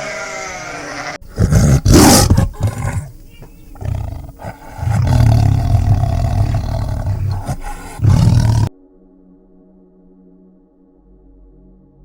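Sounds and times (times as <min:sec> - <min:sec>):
large animal roaring: 0:01.3 - 0:08.7
soft ambient music: 0:08.3 - 0:12.0.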